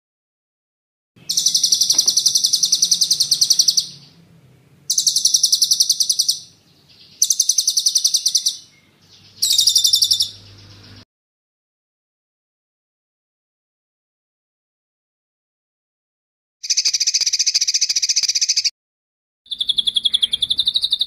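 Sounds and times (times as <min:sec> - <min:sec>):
songbird trilling: 0:01.2 - 0:04.2, 0:04.9 - 0:11.0, 0:16.6 - 0:18.7, 0:19.5 - 0:21.0.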